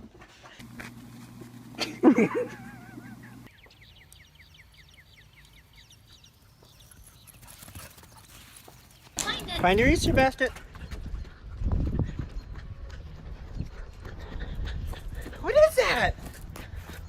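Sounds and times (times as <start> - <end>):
low steady hum: 0.6 - 5.9.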